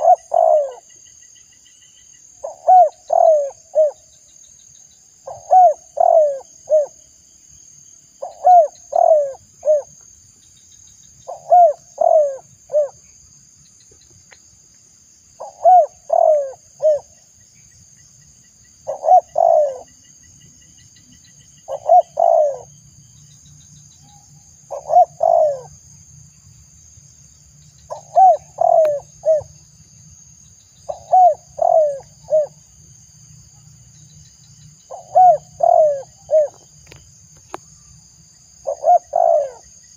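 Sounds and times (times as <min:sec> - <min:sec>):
dove cooing: 0:00.0 - 0:00.9, 0:02.4 - 0:04.0, 0:05.2 - 0:07.0, 0:08.2 - 0:09.9, 0:11.3 - 0:13.0, 0:15.4 - 0:17.2, 0:18.8 - 0:20.0, 0:21.7 - 0:22.7, 0:24.7 - 0:25.7, 0:27.9 - 0:29.5, 0:30.9 - 0:32.6, 0:34.9 - 0:36.7, 0:38.6 - 0:39.7.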